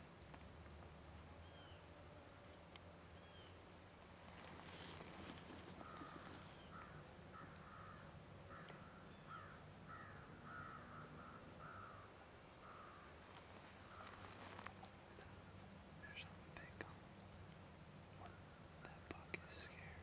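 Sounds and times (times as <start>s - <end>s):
bird calling faintly: 4.2s - 17.4s.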